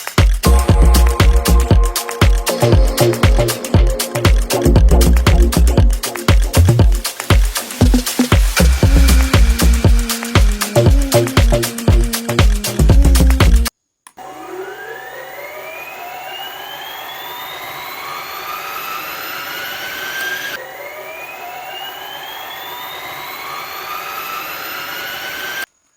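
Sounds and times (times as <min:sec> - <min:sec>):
small electric motor whining: 0:07.0 - 0:25.7.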